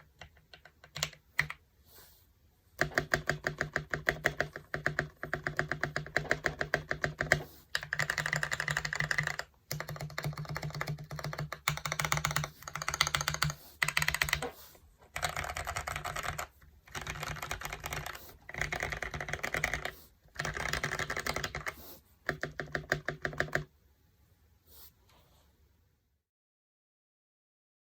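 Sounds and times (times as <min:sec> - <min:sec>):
mechanical keyboard typing: 0:00.0 - 0:01.6, 0:02.8 - 0:14.5, 0:15.1 - 0:23.7.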